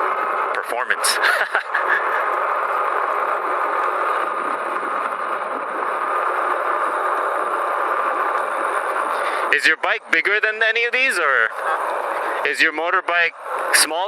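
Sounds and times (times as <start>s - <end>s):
air rush and tyre noise: 0.0s - 10.3s
thin motor whine: 0.0s - 14.0s.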